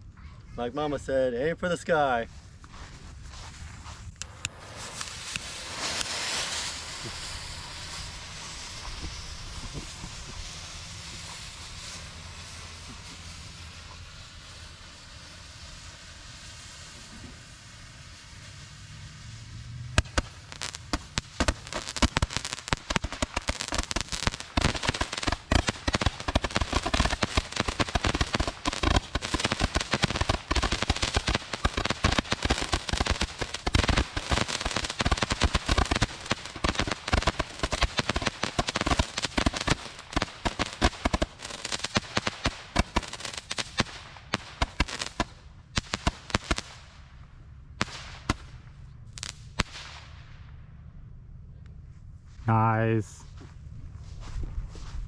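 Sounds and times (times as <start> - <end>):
roman candles popping and crackling: 19.9 - 46.8.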